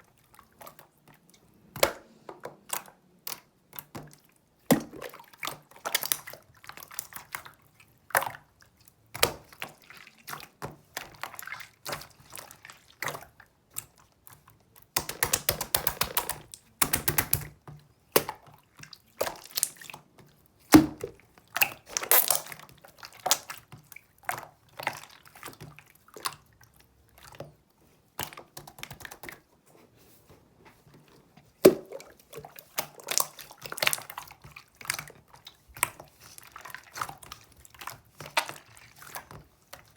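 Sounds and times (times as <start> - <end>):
slime squelching and crackling: 14.1 - 27.1, 31.6 - 39.9.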